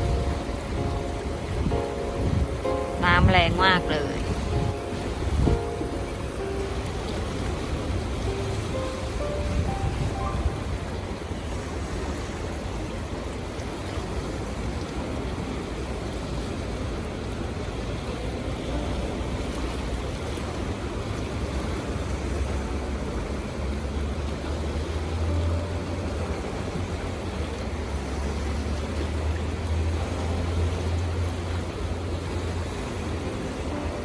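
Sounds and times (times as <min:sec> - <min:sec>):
wind buffeting microphone: 0:00.0 - 0:13.2
river rushing through rapids: 0:00.0 - 0:34.0.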